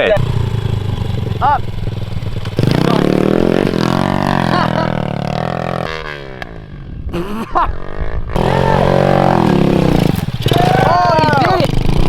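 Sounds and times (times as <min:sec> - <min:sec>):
pit bike engine running: 0:00.0 - 0:12.0.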